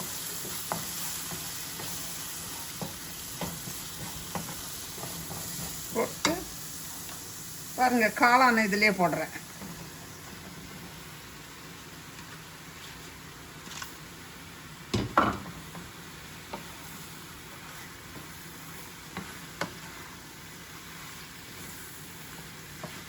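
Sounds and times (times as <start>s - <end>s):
mushrooms sizzling in a pan: 0.0s - 23.0s.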